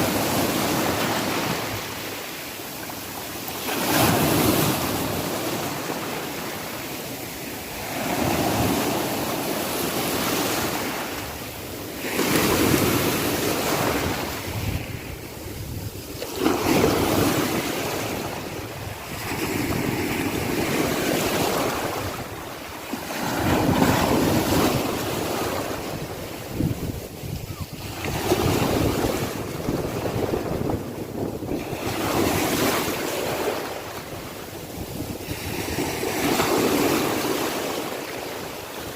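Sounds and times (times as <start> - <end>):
sea waves breaking on shore: 0.0 - 38.9
wind on microphone: 7.8 - 38.9.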